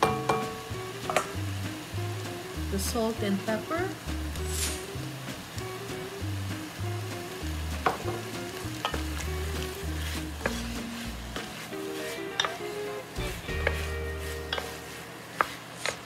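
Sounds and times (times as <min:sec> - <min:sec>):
spatula knocking against pot: 0:00.0 - 0:01.3
background music bass line: 0:00.0 - 0:11.4, 0:13.2 - 0:14.6
chicken sizzling in a pot: 0:00.0 - 0:16.0.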